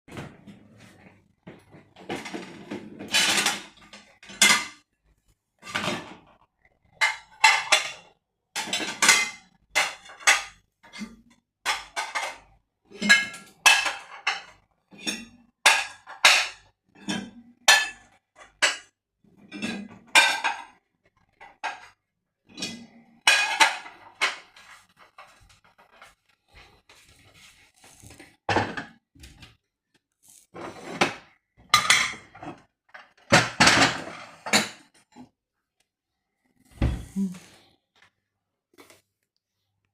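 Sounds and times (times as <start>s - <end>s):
dishes and cutlery clattering: 1.5s - 4.9s, 5.6s - 26.4s, 28.5s - 29.5s, 30.6s - 35.3s.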